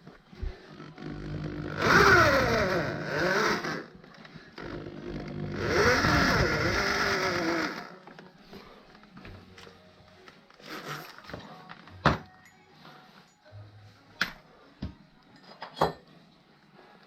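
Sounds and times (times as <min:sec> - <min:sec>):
atv engine revving: 0:01.4 - 0:03.8, 0:05.1 - 0:07.8.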